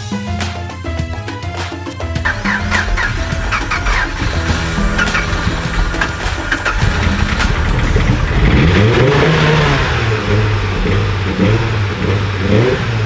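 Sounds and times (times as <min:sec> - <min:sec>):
car engine revving: 0:02.2 - 0:13.0.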